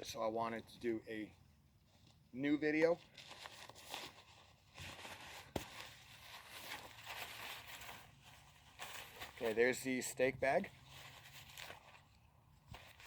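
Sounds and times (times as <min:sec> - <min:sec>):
nylon bags rustling and scraping: 0:02.8 - 0:13.0.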